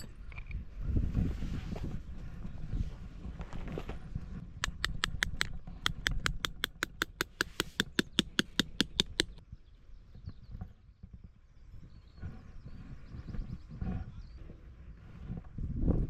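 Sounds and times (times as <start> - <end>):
hammer tapping tent peg: 4.6 - 9.4.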